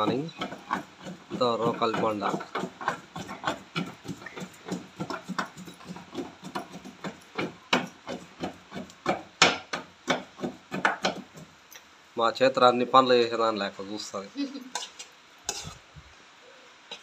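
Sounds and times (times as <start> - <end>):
stone pestle pounding in mortar: 0.0 - 11.5.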